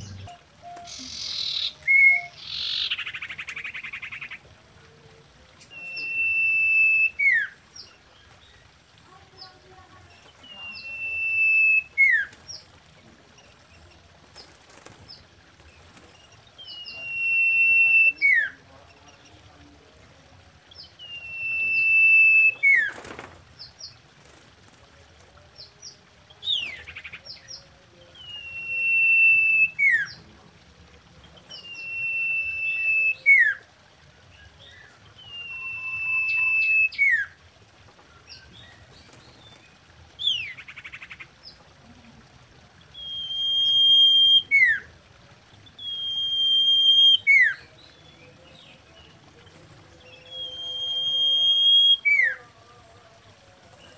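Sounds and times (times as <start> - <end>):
bird whistling: 0.0 - 3.6, 5.7 - 7.6, 10.6 - 12.3, 16.7 - 18.5, 21.0 - 22.9, 28.2 - 30.1, 31.6 - 33.6, 35.2 - 37.3, 43.0 - 44.8, 45.8 - 47.6, 50.1 - 52.4.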